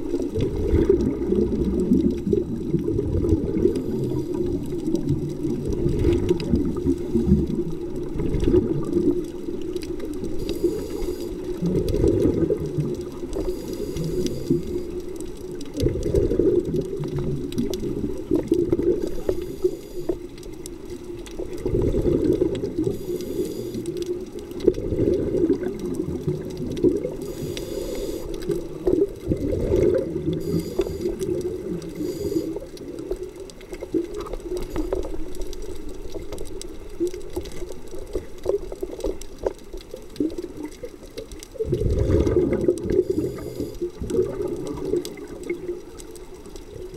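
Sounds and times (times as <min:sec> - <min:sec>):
exhaled bubbles gurgling: 0:00.0 - 0:46.9
regulator hissing on inhale: 0:03.6 - 0:04.8, 0:10.3 - 0:11.6, 0:13.4 - 0:15.2, 0:19.0 - 0:20.3, 0:22.8 - 0:24.0, 0:27.1 - 0:28.8, 0:30.3 - 0:32.8, 0:43.0 - 0:44.0.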